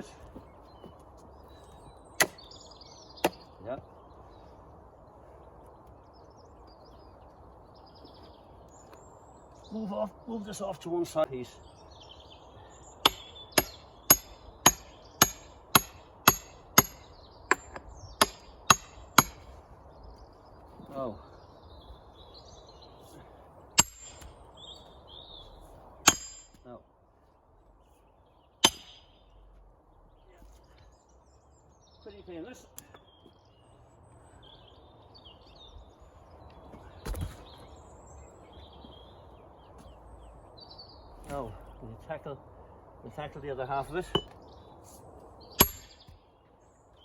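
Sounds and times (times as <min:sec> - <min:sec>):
birds chirping and singing: 0:00.0 - 0:47.0
hammer striking steel wedge: 0:13.1 - 0:19.5, 0:23.8 - 0:24.3, 0:26.1 - 0:26.6, 0:28.6 - 0:29.1, 0:45.6 - 0:46.1
dull thump: 0:37.0 - 0:37.7.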